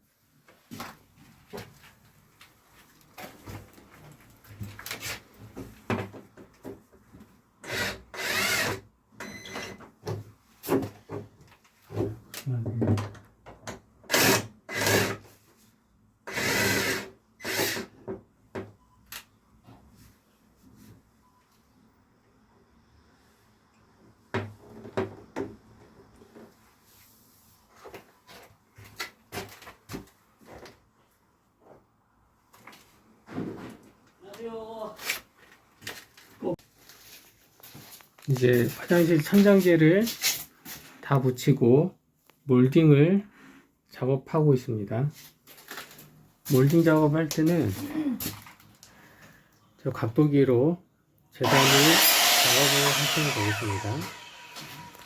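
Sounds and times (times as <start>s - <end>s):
loud rasping burst: 51.4s - 55.0s.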